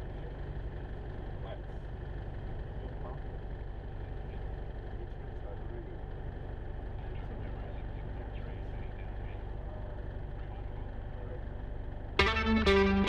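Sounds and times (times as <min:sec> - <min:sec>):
light aircraft engine droning: 0:00.0 - 0:13.0
electric guitar music: 0:12.2 - 0:13.0.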